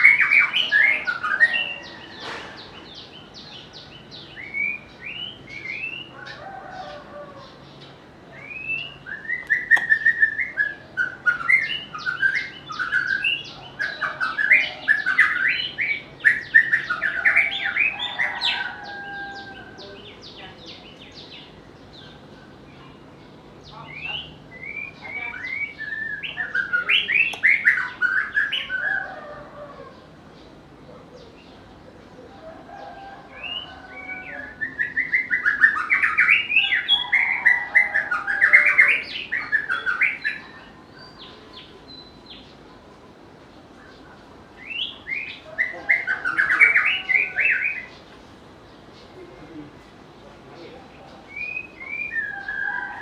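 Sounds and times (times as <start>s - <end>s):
bird singing whistled notes: 8.4s - 18.0s, 23.8s - 28.9s, 51.3s - 53.0s.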